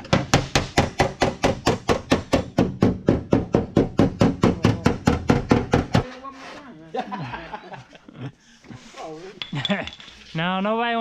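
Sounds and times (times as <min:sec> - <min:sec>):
hammer beating metal panel: 0:00.0 - 0:06.0.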